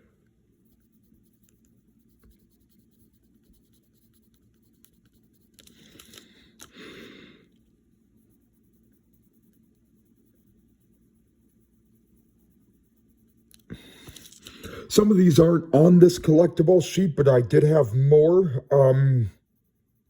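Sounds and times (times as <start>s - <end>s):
pencil scratching on paper: 0.5s - 6.0s, 7.9s - 13.5s, 17.5s - 20.0s.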